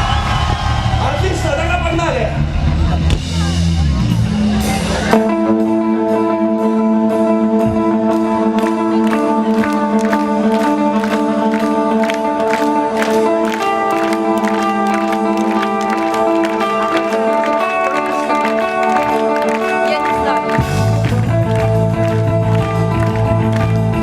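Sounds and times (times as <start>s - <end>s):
rock band playing live: 0.0s - 24.0s.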